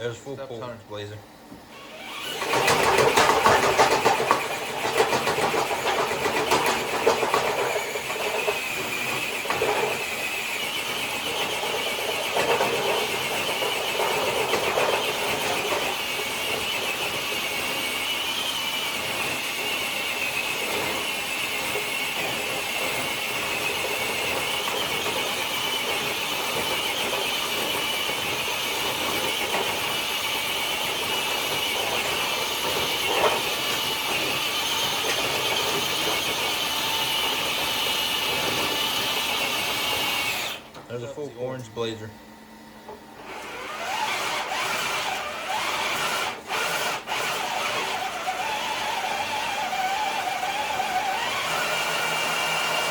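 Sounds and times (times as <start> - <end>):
electric motor and gears whining: 0.0 - 42.2, 42.8 - 52.9
sled scraping on concrete: 2.4 - 17.6, 23.5 - 40.6, 43.4 - 52.9.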